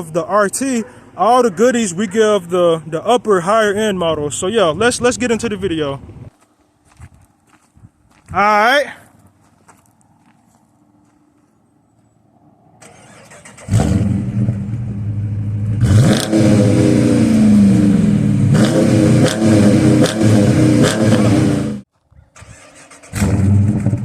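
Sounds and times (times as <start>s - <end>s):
car engine revving: 12.8s - 21.8s, 23.0s - 24.0s.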